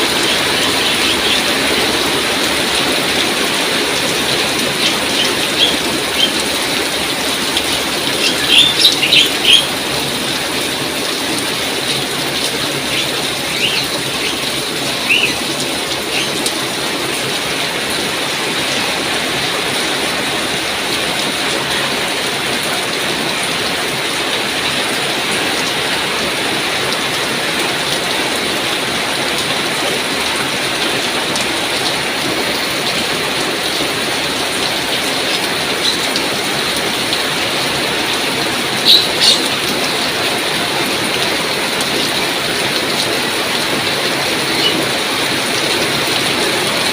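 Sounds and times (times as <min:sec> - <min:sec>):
heavy rain falling: 0:00.0 - 0:46.9
bird chirping: 0:04.8 - 0:06.4, 0:08.2 - 0:09.7, 0:12.9 - 0:15.4, 0:16.1 - 0:16.4, 0:38.8 - 0:39.5.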